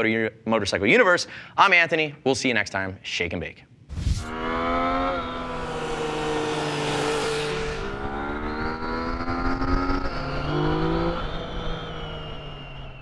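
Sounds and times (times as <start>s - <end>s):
rushing noise: 3.9s - 8.6s
motorcycle engine running: 4.2s - 11.8s.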